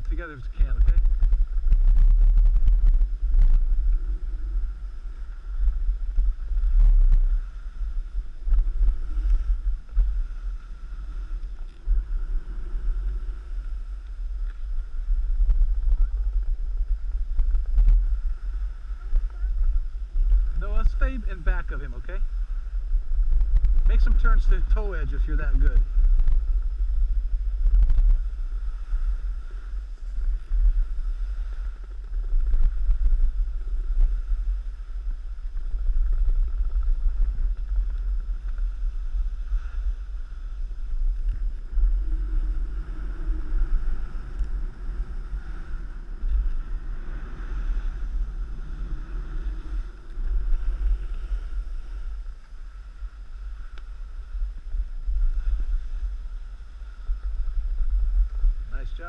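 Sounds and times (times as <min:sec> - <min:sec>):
wind buffeting microphone: 0:00.0 - 0:59.0
snowboards sliding over snow: 0:00.1 - 0:59.0.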